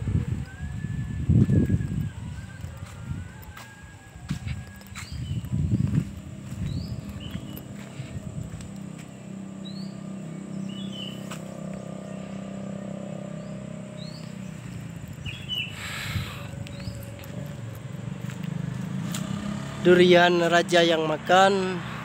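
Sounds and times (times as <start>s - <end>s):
bird chirping: 4.4s - 18.7s.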